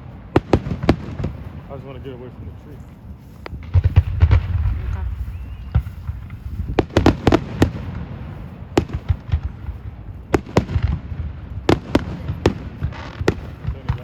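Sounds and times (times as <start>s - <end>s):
low rumble of firework booms: 0.0s - 14.0s
firework cracks: 3.4s - 14.0s.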